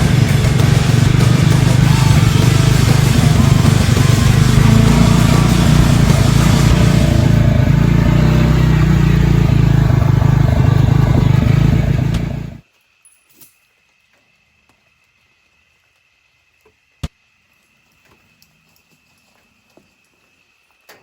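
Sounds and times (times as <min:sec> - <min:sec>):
vehicle engine running: 0:00.0 - 0:12.6.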